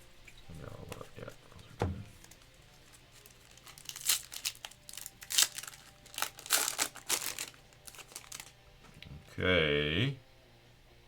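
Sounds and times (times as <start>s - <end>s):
card pack wrapper crinkling and tearing: 2.2s - 8.6s.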